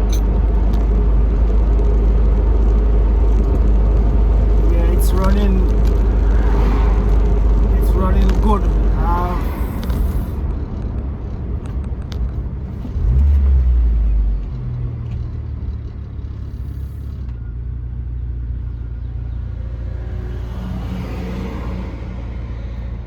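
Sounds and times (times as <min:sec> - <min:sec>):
car engine and road drone: 0:00.0 - 0:23.0
car rumble: 0:00.0 - 0:23.0.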